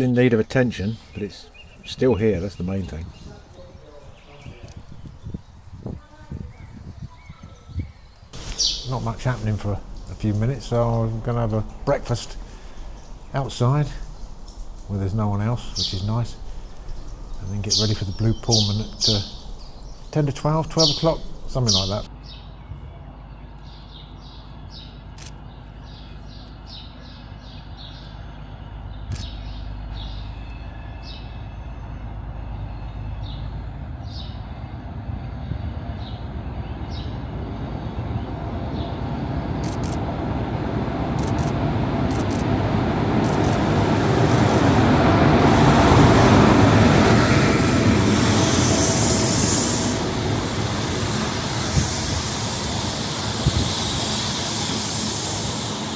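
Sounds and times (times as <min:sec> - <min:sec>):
birds chirping: 0:00.0 - 0:55.9
train rumbling: 0:00.0 - 0:55.9
train hiss: 0:08.0 - 0:22.1, 0:36.0 - 0:55.9.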